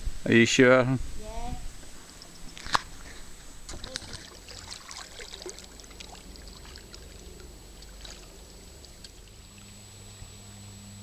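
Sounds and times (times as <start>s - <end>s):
paddle splashing water: 1.8s - 9.9s.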